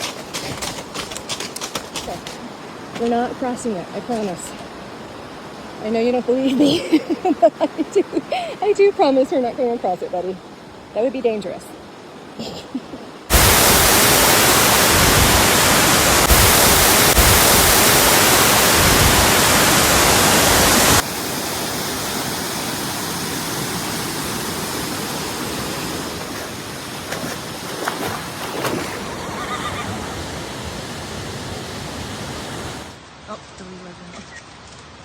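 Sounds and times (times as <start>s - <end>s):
waterfall rushing: 13.3s - 33.0s.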